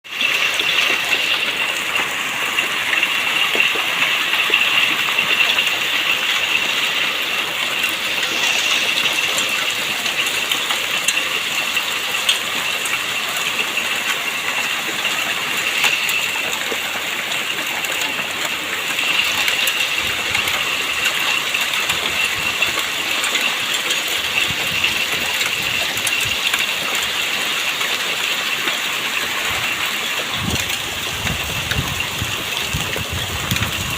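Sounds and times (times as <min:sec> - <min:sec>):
rain and hail falling: 0:00.0 - 0:33.9
hailstones striking hard surfaces: 0:00.1 - 0:33.9.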